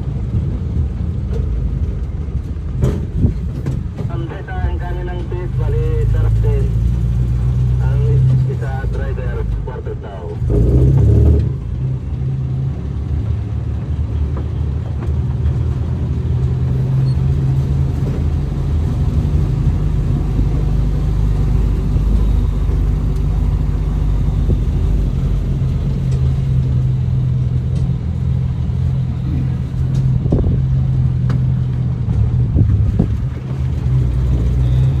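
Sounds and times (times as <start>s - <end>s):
car engine humming: 0.0s - 35.0s.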